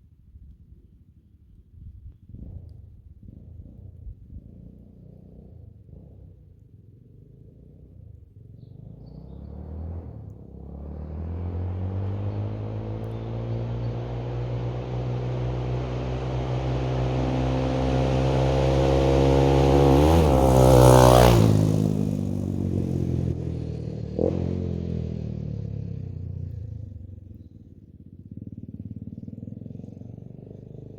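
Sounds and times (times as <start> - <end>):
motorbike engine passing by: 8.4 - 30.9.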